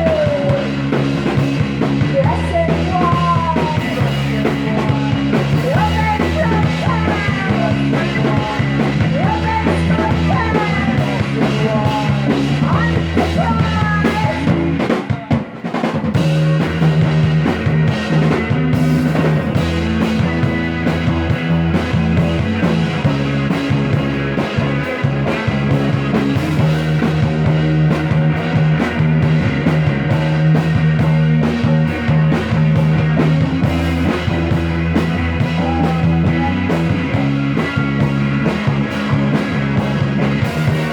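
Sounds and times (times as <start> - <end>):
live psychedelic rock band: 0.0 - 40.9.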